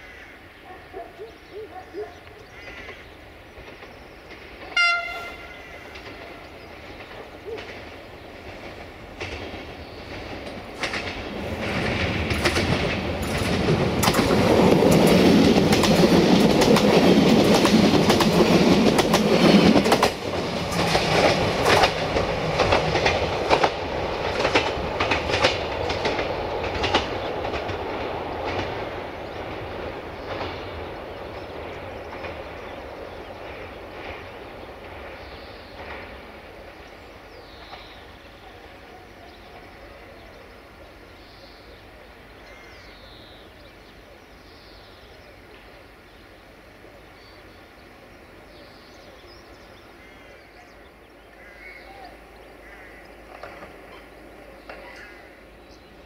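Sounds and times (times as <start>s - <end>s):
train engine and wheels passing: 0.0s - 56.0s
wheels clicking over rail joints: 5.9s - 34.3s, 53.0s - 55.2s.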